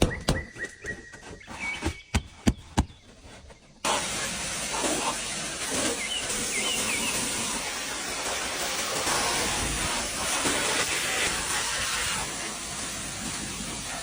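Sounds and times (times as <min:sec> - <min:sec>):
pressure washer spray hissing: 0:03.8 - 0:14.0.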